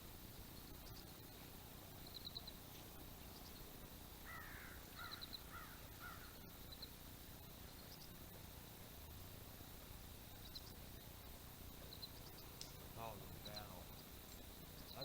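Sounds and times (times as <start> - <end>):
high twittering trills: 0.4 - 8.2, 10.2 - 15.0
faint bird calls: 2.0 - 7.0, 11.8 - 14.1
faint click: 12.6 - 12.8.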